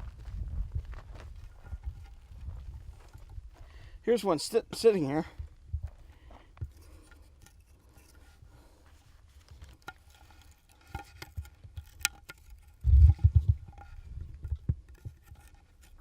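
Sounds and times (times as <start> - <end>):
small scrapes and clicks: 6.1 - 16.0.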